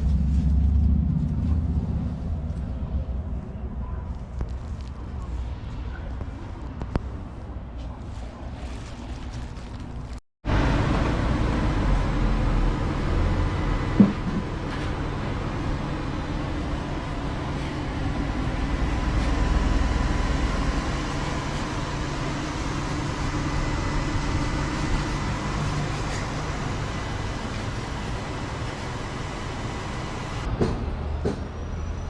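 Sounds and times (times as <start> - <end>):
vehicle engine humming: 0.0 - 32.0.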